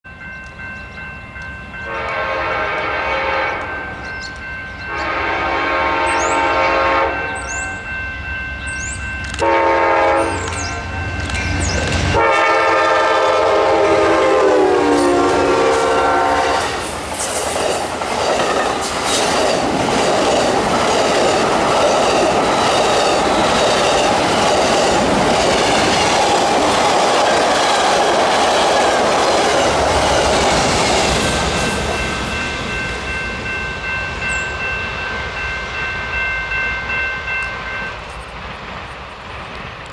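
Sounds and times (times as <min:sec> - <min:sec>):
rail cars clattering: 0:00.0 - 0:39.9
locomotive horn blasts: 0:01.8 - 0:04.0, 0:04.9 - 0:07.9, 0:09.4 - 0:11.0, 0:12.1 - 0:16.8.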